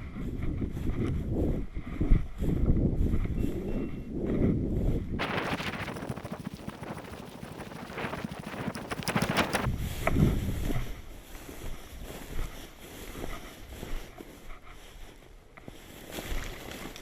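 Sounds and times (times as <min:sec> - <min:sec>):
wind buffeting microphone: 0:00.0 - 0:14.9
footsteps through dry grass: 0:05.2 - 0:17.0.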